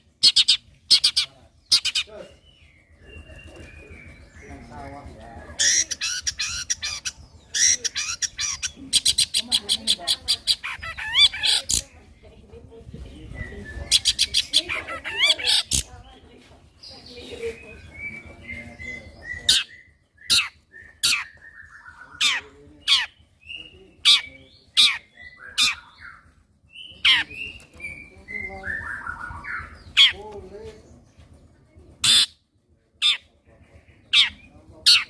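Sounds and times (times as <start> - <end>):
bird singing sharp warbles: 16.8 - 30.4.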